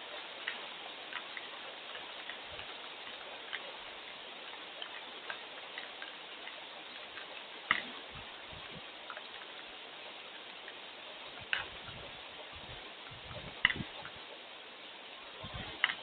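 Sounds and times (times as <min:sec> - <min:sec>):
rain hiss: 0:00.0 - 0:16.0.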